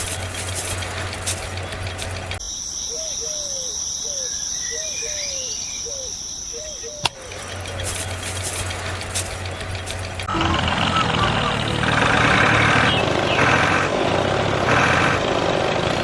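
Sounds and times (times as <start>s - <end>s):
sharp click: 7.0s - 7.3s.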